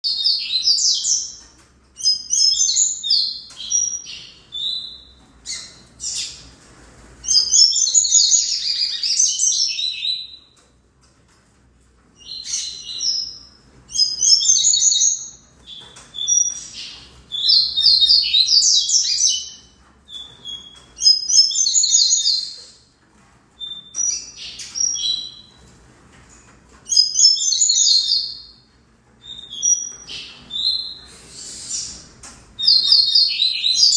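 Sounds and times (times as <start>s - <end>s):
bird twittering song: 0.0s - 6.6s, 7.2s - 10.6s, 12.2s - 22.9s, 23.6s - 25.7s, 26.9s - 33.9s.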